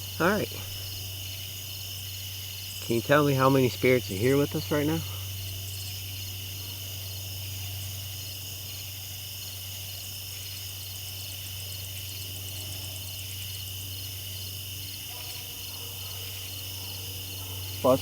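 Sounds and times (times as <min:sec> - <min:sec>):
steady low hum: 0:00.0 - 0:09.6
crickets chirping: 0:00.0 - 0:18.0
rapid pulsed insect trill: 0:00.0 - 0:18.0.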